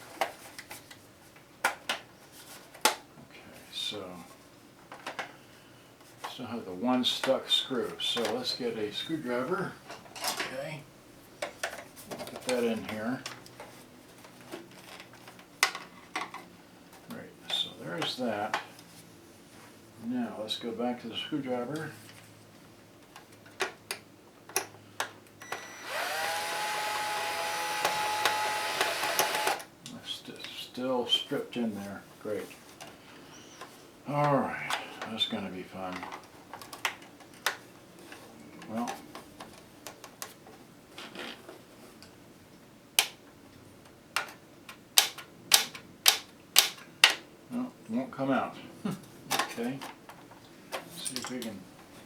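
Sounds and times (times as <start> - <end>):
electric screwdriver motor whine: 25.4 - 29.7.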